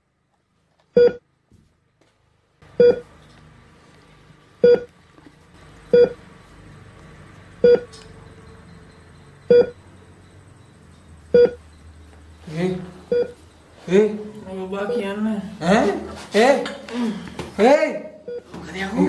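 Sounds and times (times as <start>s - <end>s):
short electronic beeps: 1.0s - 1.2s, 2.8s - 3.0s, 4.6s - 4.9s, 5.9s - 6.2s, 7.6s - 11.9s, 13.1s - 13.4s.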